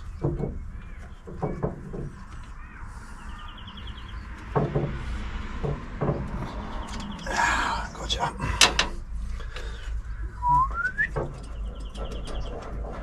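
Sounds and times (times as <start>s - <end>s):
hand tools knocking on engine: 5.6s - 6.6s.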